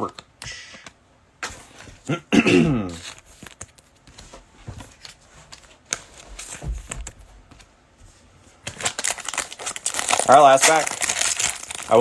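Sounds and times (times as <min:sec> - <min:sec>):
cards sliding and tapping: 0:03.0 - 0:07.6.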